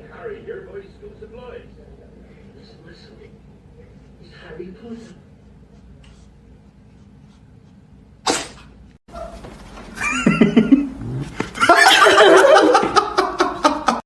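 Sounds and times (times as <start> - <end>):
people laughing: 10.0 - 14.0.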